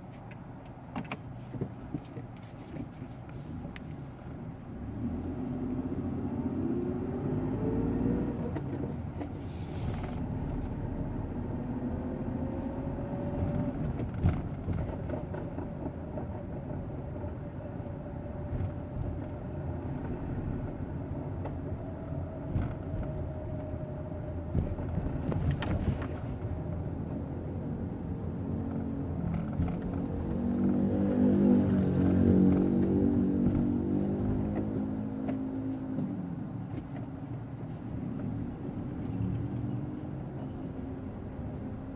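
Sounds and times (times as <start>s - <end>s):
car engine grinding: 28.7s - 38.5s.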